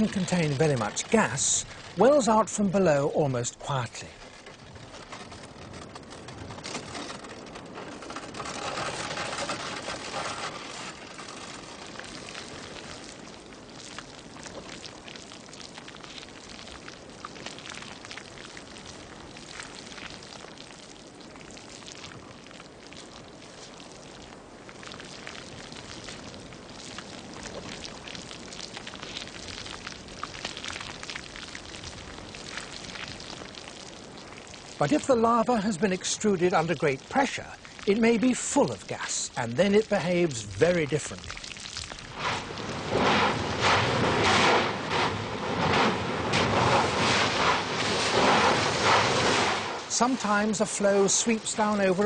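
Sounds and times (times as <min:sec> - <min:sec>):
lava crackling and popping: 0:00.0 - 0:52.0
lava hissing: 0:00.0 - 0:52.0.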